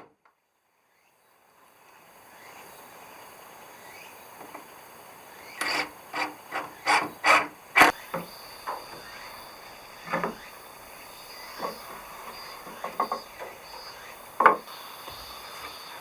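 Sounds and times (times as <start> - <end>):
hand tool rasping on wood: 5.6 - 8.0.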